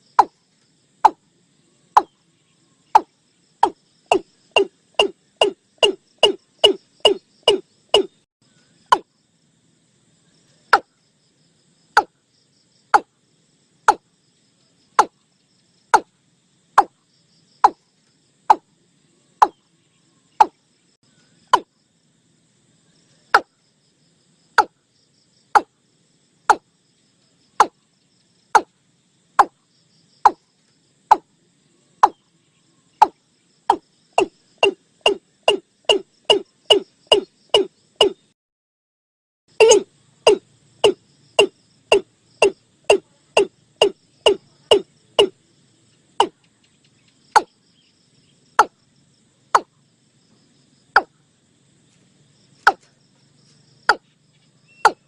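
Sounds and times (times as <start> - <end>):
bird calling with falling notes: 34.2 - 38.2, 39.6 - 42.6.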